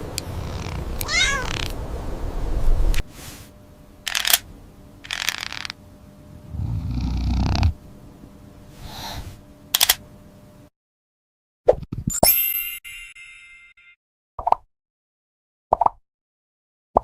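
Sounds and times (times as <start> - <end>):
cat purring: 0.2 - 1.7, 6.4 - 7.8
cat meowing: 0.6 - 1.8.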